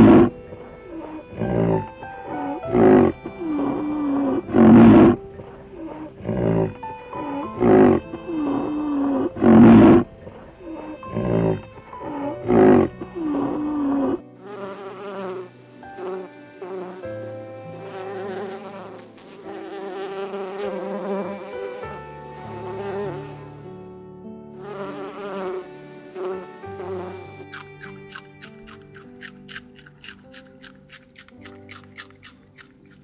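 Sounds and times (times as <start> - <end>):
honeybees buzzing: 0.0 - 33.0
large animal grunting: 2.6 - 3.2, 4.2 - 6.7, 7.5 - 11.6, 12.4 - 14.2.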